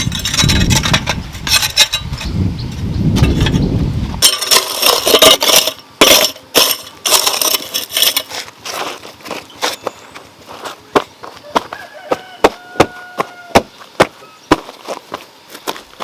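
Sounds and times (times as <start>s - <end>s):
hard objects clinking and scraping: 0.0s - 2.4s, 3.2s - 9.8s.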